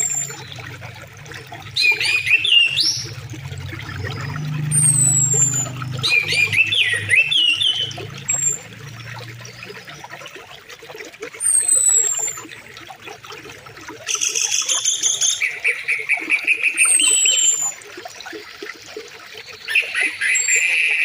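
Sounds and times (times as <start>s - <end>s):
songbirds warbling: 0.0s - 10.7s
river water flowing: 0.0s - 21.0s.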